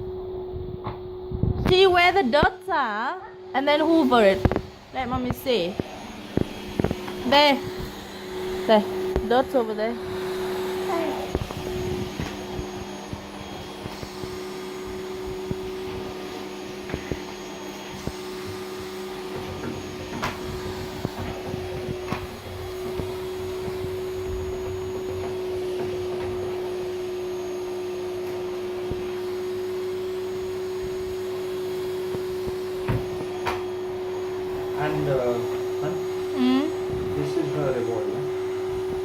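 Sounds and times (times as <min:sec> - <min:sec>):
vacuum cleaner droning: 0:00.0 - 0:39.0.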